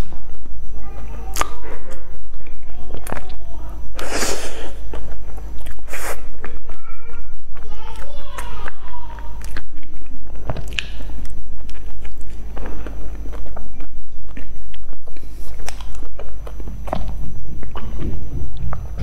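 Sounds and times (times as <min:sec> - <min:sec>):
mouth clicks and smacks: 0:01.3 - 0:03.4, 0:04.9 - 0:06.8, 0:07.9 - 0:19.0
person chewing bread: 0:04.0 - 0:19.0.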